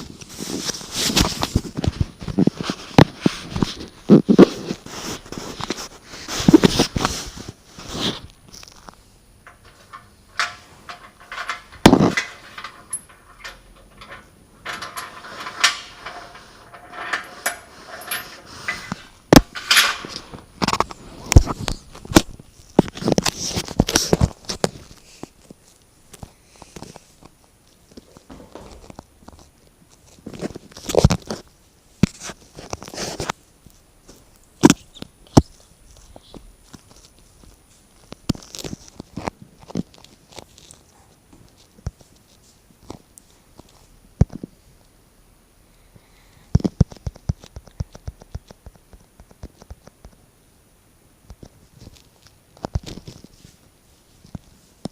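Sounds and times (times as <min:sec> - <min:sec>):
knocking and scraping in chimney: 0:09.4 - 0:24.8, 0:28.2 - 0:29.1.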